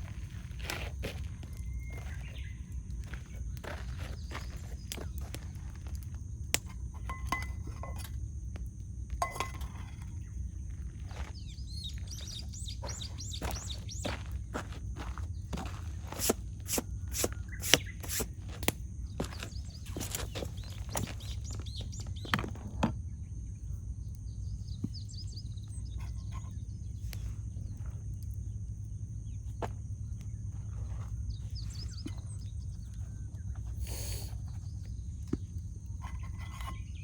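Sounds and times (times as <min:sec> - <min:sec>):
small birds chirping faintly: 0:00.0 - 0:37.0
campfire crackling and popping: 0:02.5 - 0:07.0, 0:12.4 - 0:19.6.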